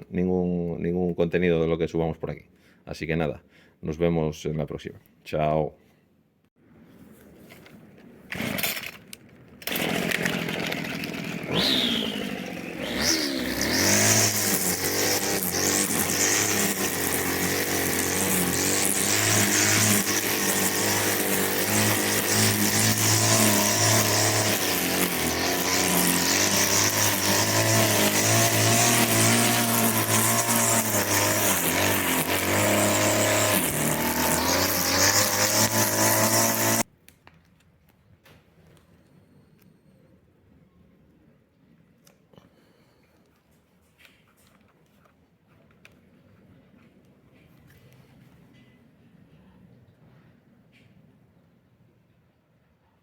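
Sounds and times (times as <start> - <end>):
string trimmer engine running: 8.3 - 9.0, 9.6 - 36.9.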